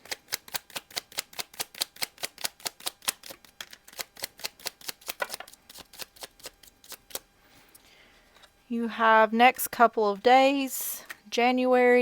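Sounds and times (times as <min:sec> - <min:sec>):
cards clicking while shuffled: 0:00.0 - 0:07.2.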